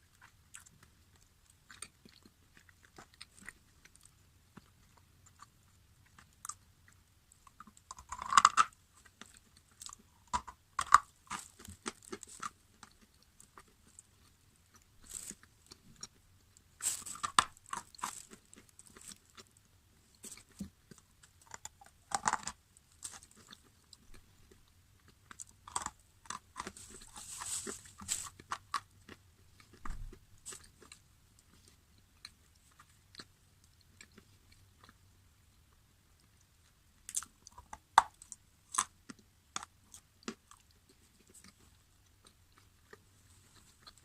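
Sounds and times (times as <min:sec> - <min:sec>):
crunchy food chewing: 0:00.0 - 0:44.0.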